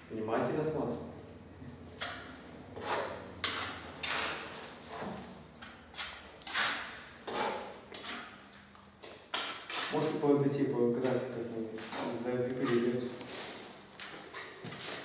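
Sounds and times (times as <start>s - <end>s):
trowel scraping mortar: 2.8s - 8.4s, 9.3s - 10.0s, 11.8s - 13.6s.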